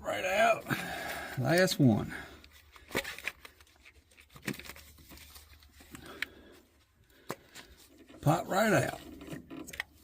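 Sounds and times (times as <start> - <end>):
soft handling noise: 1.3 - 10.0
ignition coils clicking and knocking: 7.2 - 10.0.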